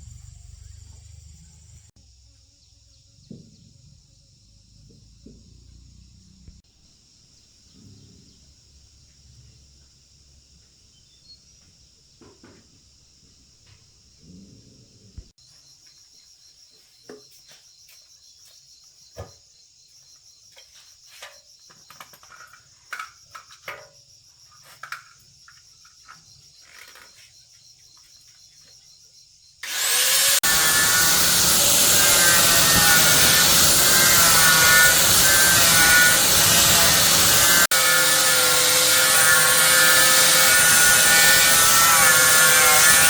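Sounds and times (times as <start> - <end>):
power tool whining: 29.6 - 43.0.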